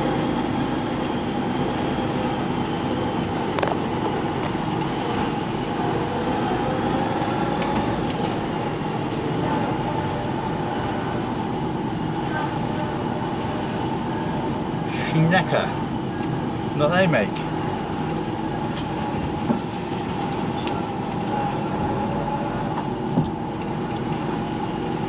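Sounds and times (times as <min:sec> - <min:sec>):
diesel engine and road noise: 0:00.0 - 0:25.0.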